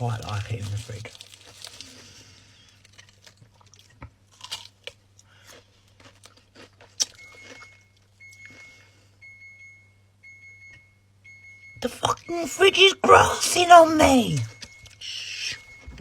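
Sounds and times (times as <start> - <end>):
crunchy snack being chewed: 0.1 - 8.8
fridge door alarm beeping: 7.0 - 16.0.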